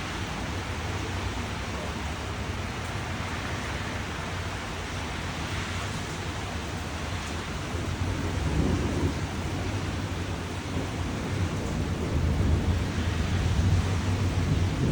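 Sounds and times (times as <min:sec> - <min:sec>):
steady rain hissing: 0:00.0 - 0:14.9
thunder rumbling: 0:07.4 - 0:14.9.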